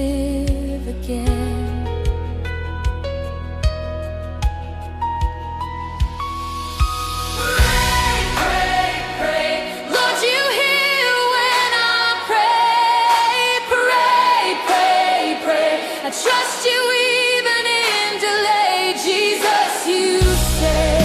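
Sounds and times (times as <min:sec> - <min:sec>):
soft instrumental backing: 0:00.0 - 0:10.5.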